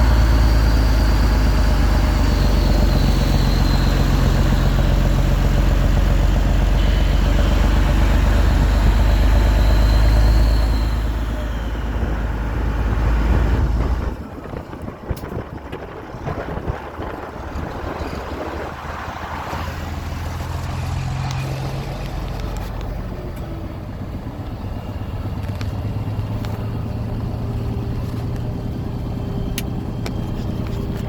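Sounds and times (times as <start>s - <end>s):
diesel truck engine running loud: 0.0s - 31.0s
faint high whistle: 2.0s - 5.0s, 6.7s - 12.0s
wind noise on microphone: 11.5s - 20.7s.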